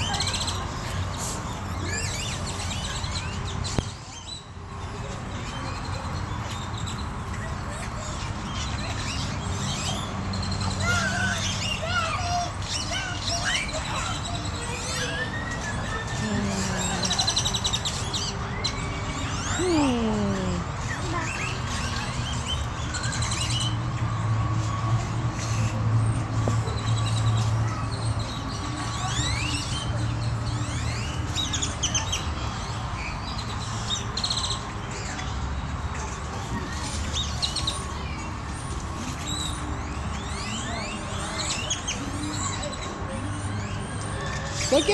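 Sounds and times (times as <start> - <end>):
birds chirping and calling: 6.2 - 23.7, 39.2 - 44.9.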